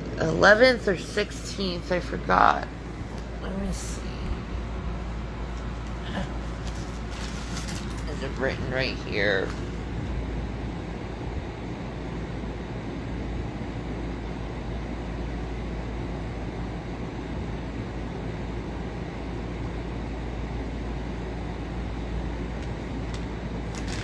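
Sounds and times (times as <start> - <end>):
faint low hum: 0.0 - 24.0
low rumble and hiss: 0.0 - 24.0.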